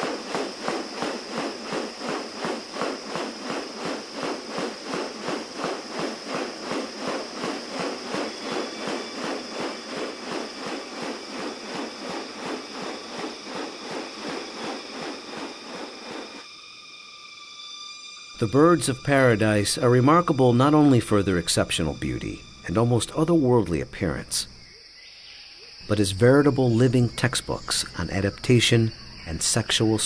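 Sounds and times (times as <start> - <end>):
regular swishing pulses: 0.0 - 16.4
high insect drone: 0.0 - 30.0.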